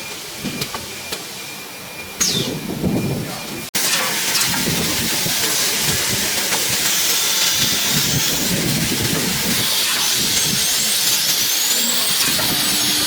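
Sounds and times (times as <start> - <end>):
cnc router machine hissing: 9.5 - 13.0.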